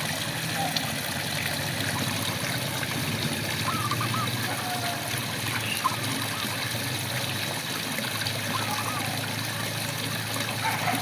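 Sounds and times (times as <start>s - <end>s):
frog calls: 3.6s - 6.5s.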